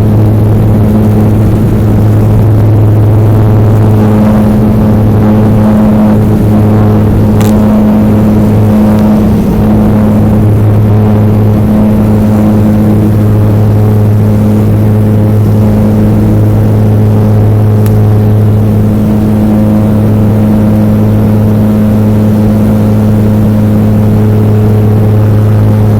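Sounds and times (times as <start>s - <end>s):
turboprop cabin drone: 0.0s - 25.9s.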